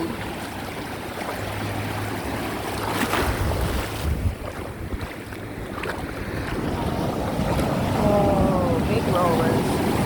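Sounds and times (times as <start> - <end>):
small waves washing in: 0.0 - 10.0
wind buffeting microphone: 3.0 - 10.0.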